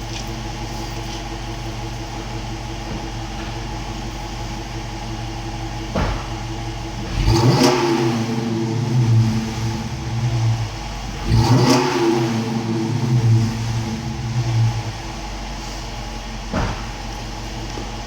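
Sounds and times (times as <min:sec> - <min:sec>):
car engine idling and revving: 0:00.0 - 0:18.0
short knock: 0:05.9 - 0:06.5, 0:16.5 - 0:17.2.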